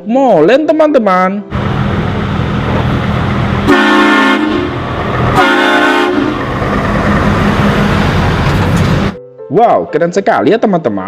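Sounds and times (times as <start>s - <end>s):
heavy vehicle engine rumbling: 1.5s - 9.2s
horn blasts: 3.6s - 6.5s.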